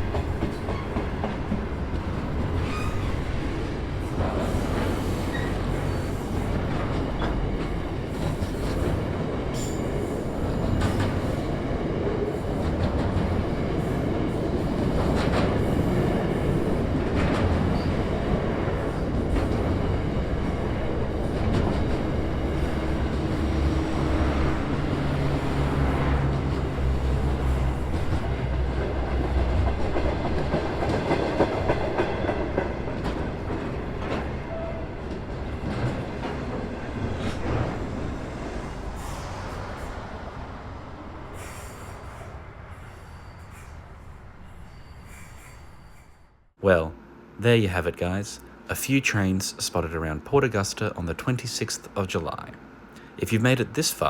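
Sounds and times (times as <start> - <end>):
train wheels clacking on rail joints: 0.0 - 3.4, 4.0 - 11.6, 12.5 - 24.4, 26.3 - 38.0.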